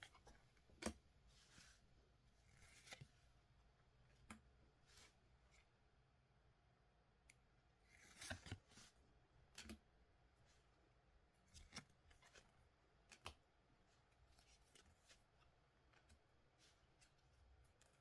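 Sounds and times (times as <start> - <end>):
soft rustles of packaging: 0.0 - 3.4, 11.4 - 18.0.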